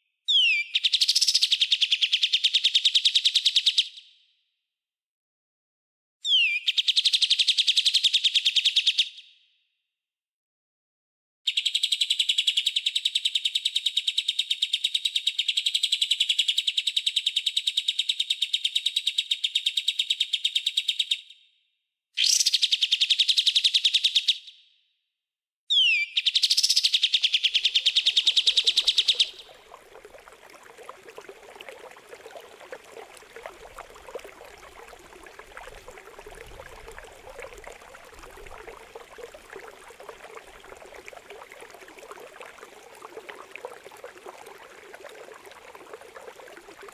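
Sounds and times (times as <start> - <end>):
trickle of running water: 27.3 - 46.9.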